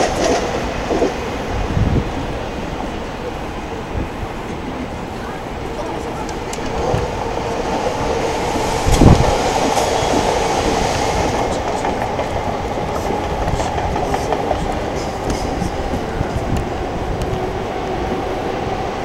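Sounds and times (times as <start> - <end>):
train rumble: 0.0 - 19.0
train wheel clicks: 6.2 - 7.2, 8.4 - 18.2.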